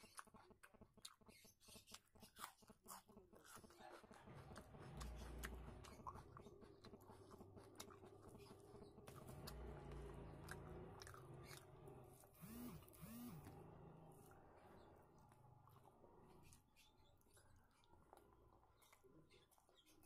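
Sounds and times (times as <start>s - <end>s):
chewing and mouth clicks: 0.0s - 12.5s, 14.2s - 20.0s.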